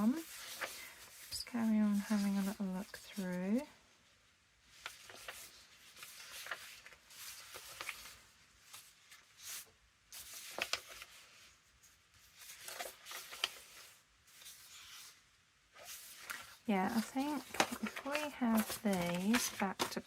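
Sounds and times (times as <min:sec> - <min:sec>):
paper rustling: 0:00.0 - 0:03.7, 0:04.7 - 0:20.0.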